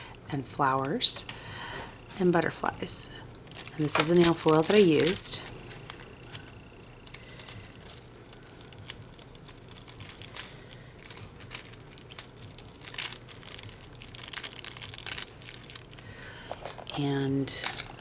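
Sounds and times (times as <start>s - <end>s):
plastic sheets crinkling: 0.4s - 18.0s.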